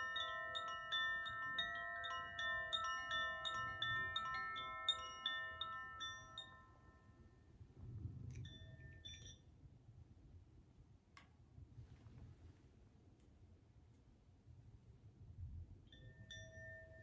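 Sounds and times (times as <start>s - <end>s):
wind chime bell-like tones: 0.0s - 7.6s, 8.4s - 9.5s, 15.9s - 17.0s.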